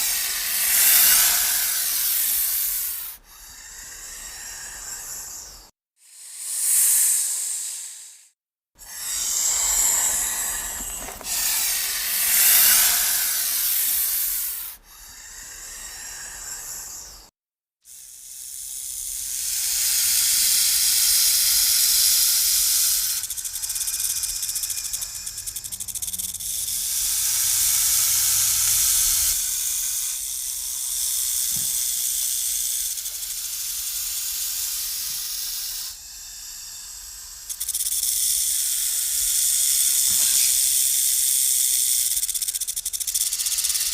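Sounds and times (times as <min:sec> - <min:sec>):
snakes hissing: 0:00.0 - 0:17.3, 0:17.9 - 0:43.9.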